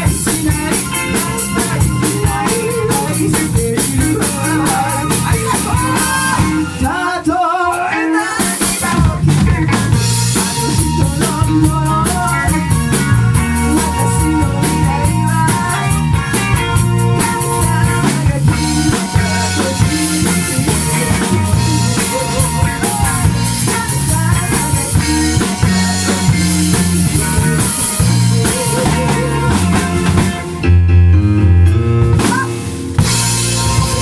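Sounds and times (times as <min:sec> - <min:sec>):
drum kit beat: 0:00.0 - 0:07.0, 0:07.7 - 0:30.8, 0:31.6 - 0:34.0
live band playing pop song: 0:00.0 - 0:34.0.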